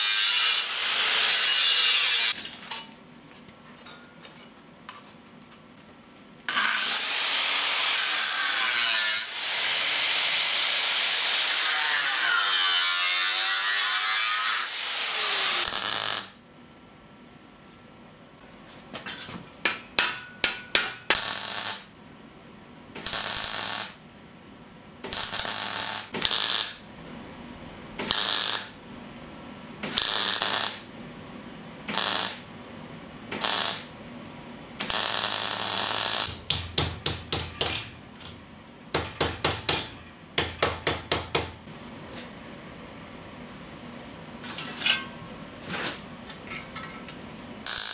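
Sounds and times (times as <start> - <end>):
welding arc crackling: 15.4 - 16.4, 21.2 - 21.9, 23.0 - 24.0, 25.1 - 26.8, 28.0 - 28.8, 29.9 - 30.9, 31.9 - 32.5, 33.4 - 33.9, 34.8 - 36.4, 47.7 - 47.9.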